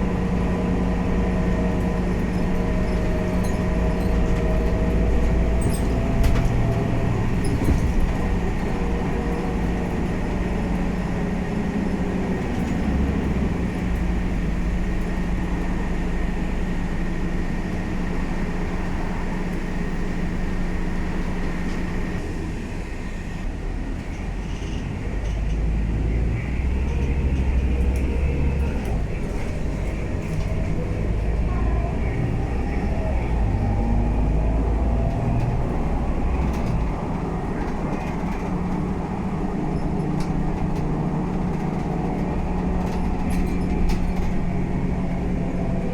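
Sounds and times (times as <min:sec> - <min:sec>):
bus engine drone: 0:00.0 - 0:45.9.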